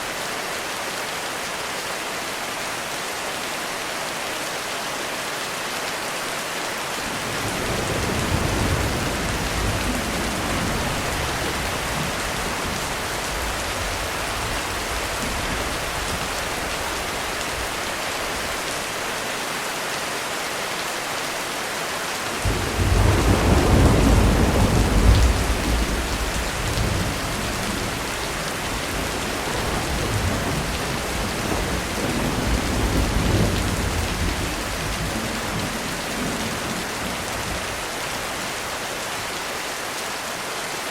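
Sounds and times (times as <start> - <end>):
heavy rain on a roof: 0.0 - 40.9
thunder rumbling: 7.2 - 17.7, 22.4 - 37.8.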